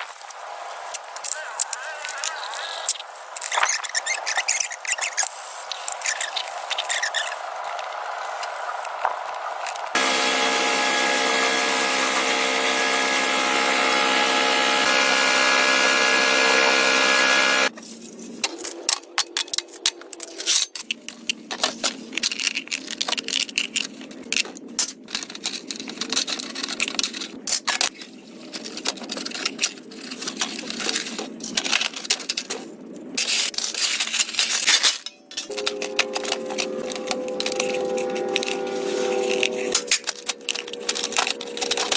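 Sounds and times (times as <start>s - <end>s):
power tool running: 10.0s - 17.7s, 35.5s - 41.9s
clicks and scrapes on metal parts: 17.8s - 38.6s.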